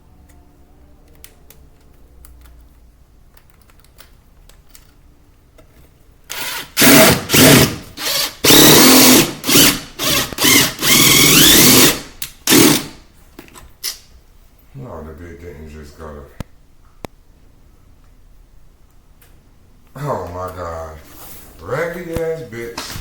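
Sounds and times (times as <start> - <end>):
faint clicks and handling: 1.0 - 6.0
power drill driving screws: 6.3 - 13.0.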